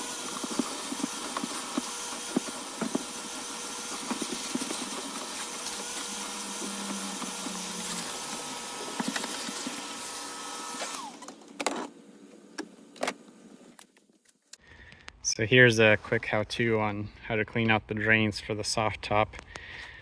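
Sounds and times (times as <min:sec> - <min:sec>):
vacuum motor spinning down: 0:00.0 - 0:11.3
vacuum cleaner running: 0:00.0 - 0:11.4.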